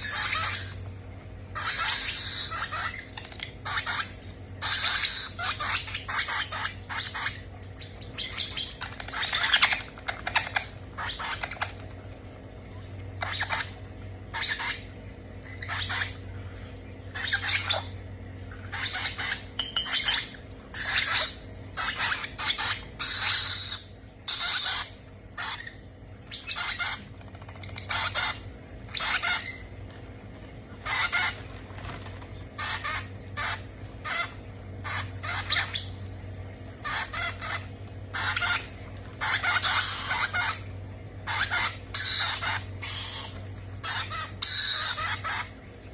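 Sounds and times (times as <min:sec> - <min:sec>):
parrot chicks begging calls: 0:00.0 - 0:45.9.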